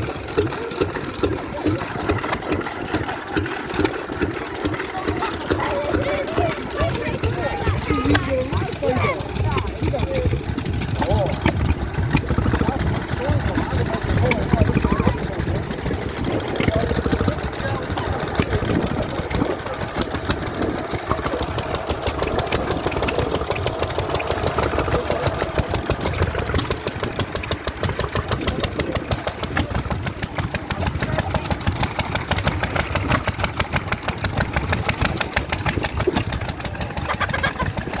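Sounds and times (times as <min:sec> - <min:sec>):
stationary engine running: 0:00.0 - 0:38.0.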